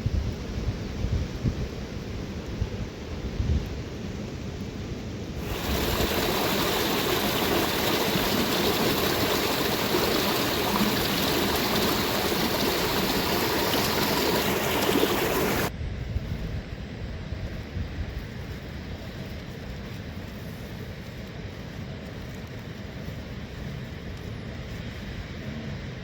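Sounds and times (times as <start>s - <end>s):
rushing water hiss: 5.4s - 15.7s.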